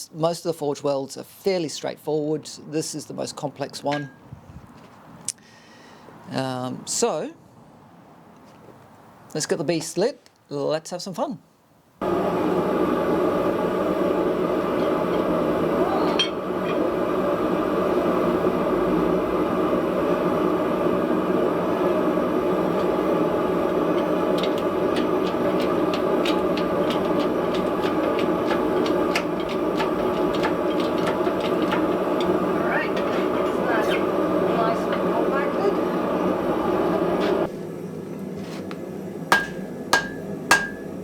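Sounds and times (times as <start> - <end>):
gas burner rushing: 12.0 - 37.7, 38.4 - 41.0.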